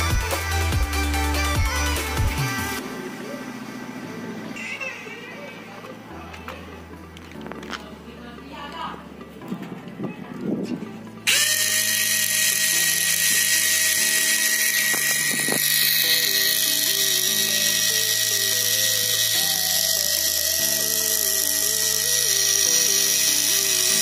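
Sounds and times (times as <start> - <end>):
electric motors whining: 11.2 - 24.0.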